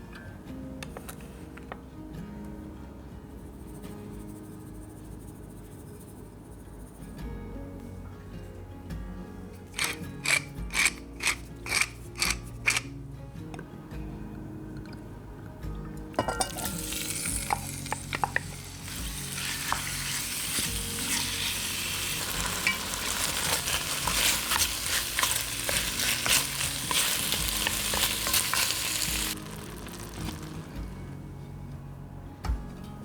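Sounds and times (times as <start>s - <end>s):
food sizzling in oil: 16.2s - 30.8s.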